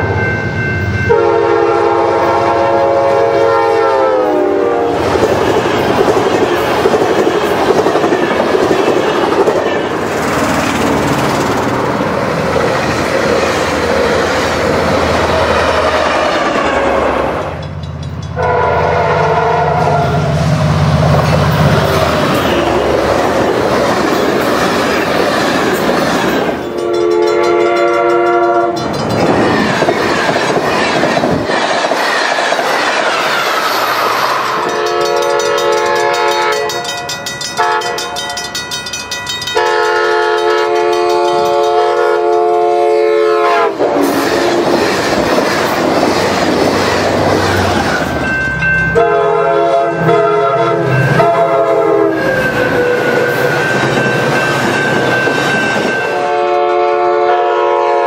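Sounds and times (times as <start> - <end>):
train wheels rumbling on rails: 0.0 - 58.0
locomotive air horn: 1.1 - 5.0, 18.4 - 20.6, 21.7 - 23.1, 26.8 - 28.8, 34.3 - 36.8, 37.6 - 38.2, 39.6 - 44.6, 49.0 - 53.8, 56.1 - 58.0.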